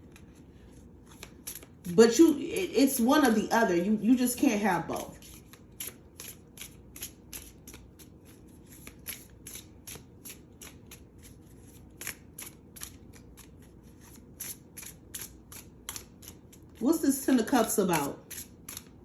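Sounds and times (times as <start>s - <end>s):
cards being shuffled: 0.0s - 1.9s, 4.9s - 16.8s, 18.0s - 19.0s.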